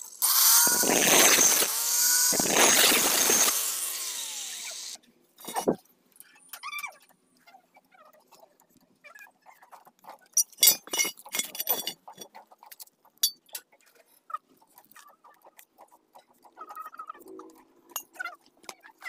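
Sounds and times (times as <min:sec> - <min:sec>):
metal clinks and scrapes: 0:10.3 - 0:14.2.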